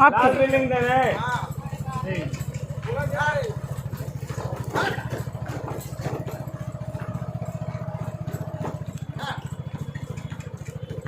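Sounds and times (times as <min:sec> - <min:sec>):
small engine puttering: 0:00.0 - 0:11.0.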